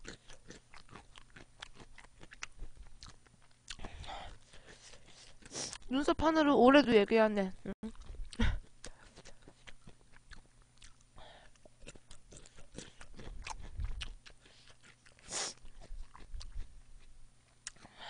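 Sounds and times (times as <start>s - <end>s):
person chewing with mouth clicks: 0.0s - 5.9s, 7.8s - 18.0s.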